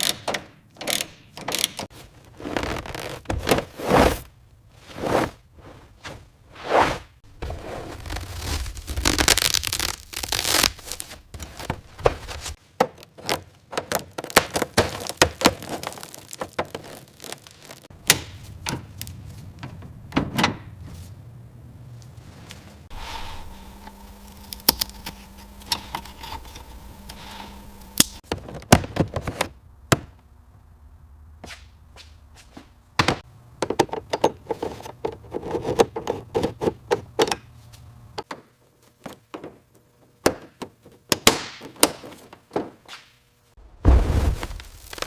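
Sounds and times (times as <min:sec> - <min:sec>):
faint steady hum: 0:20.8 - 0:28.2.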